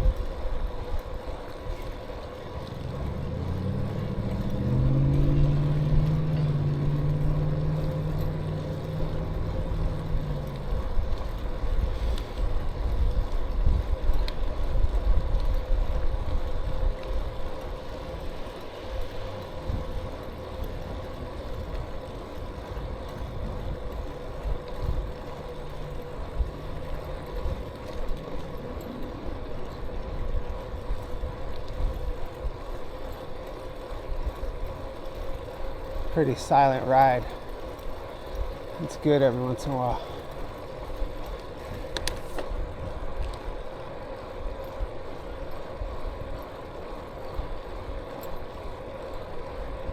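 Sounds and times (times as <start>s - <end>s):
faint steady whine: 0.0s - 49.9s
wind and road rumble: 0.0s - 49.9s
vehicle engine passing: 2.5s - 11.9s, 17.7s - 31.1s.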